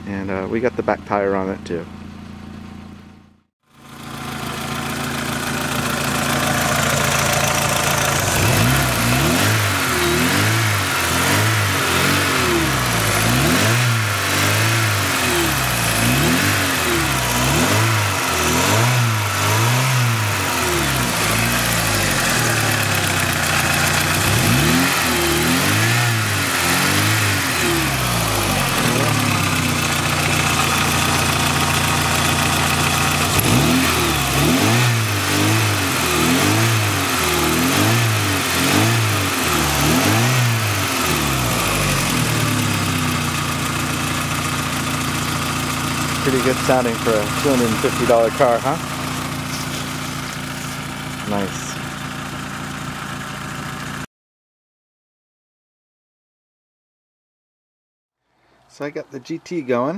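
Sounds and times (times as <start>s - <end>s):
car engine idling and revving: 0.0s - 54.1s.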